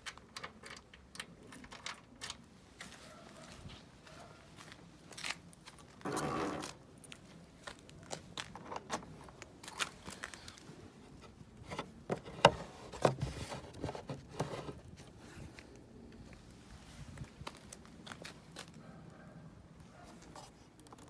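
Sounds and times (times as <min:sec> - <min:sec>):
hands handling objects: 0:08.2 - 0:15.8.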